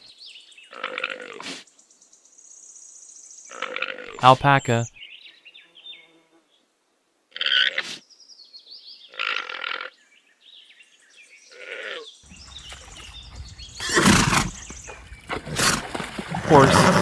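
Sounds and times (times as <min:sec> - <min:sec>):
alpaca calling: 0:12.4 - 0:17.0.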